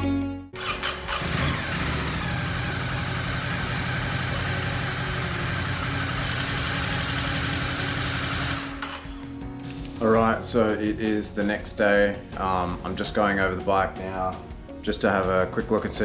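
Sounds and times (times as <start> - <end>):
motorcycle engine idling: 0.6 - 9.3.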